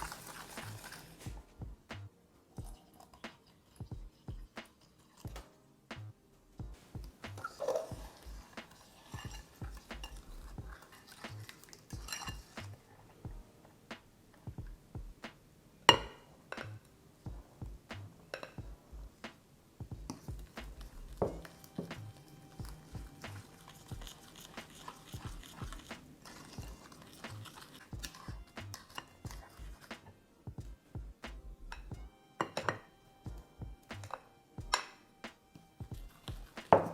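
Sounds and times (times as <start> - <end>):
utensils clinking against bowl: 7.4 - 12.7, 21.2 - 30.0, 32.4 - 32.9.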